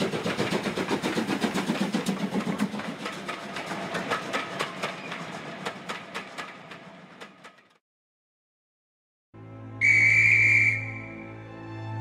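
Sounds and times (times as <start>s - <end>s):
steady train hum: 0.0s - 7.8s
wheels clicking over rail joints: 0.0s - 7.8s.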